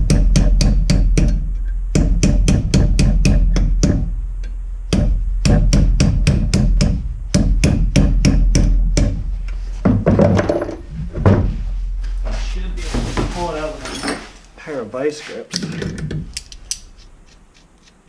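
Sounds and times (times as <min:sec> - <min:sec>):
hammer tapping on metal punch: 0:00.0 - 0:09.2.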